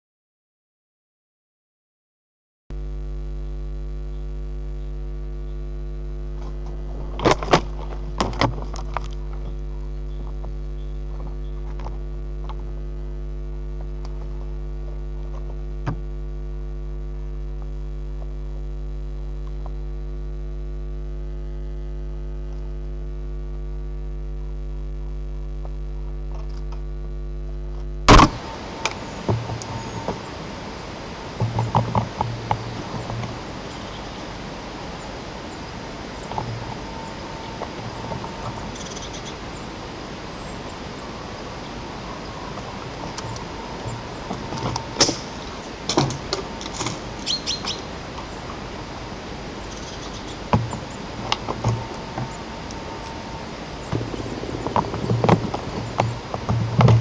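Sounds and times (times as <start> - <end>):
electrical mains hum: 2.7 - 57.0
loud pop: 28.1 - 28.4.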